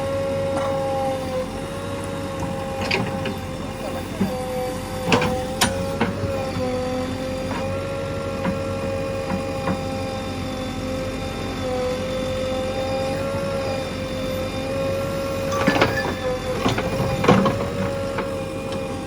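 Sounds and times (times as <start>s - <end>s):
backhoe loader whine: 0.0s - 19.0s
sharp metal clanks: 15.5s - 17.6s.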